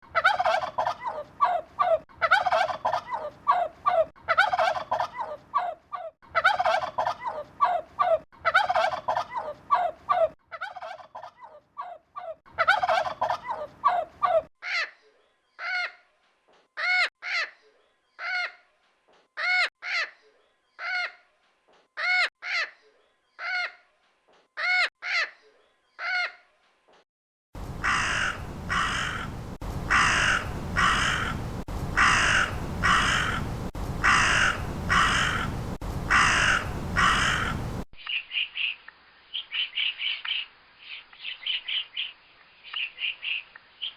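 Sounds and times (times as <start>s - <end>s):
turkey gobbling: 0.2s - 5.7s, 6.4s - 11.6s, 12.2s - 14.4s, 27.8s - 29.3s, 29.9s - 37.8s
background hiss: 27.6s - 43.9s.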